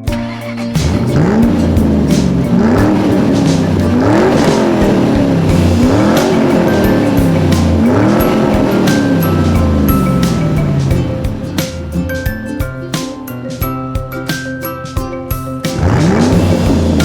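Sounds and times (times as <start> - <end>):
race car engine revving: 0.0 - 11.9, 15.8 - 17.0
background music: 0.0 - 17.0.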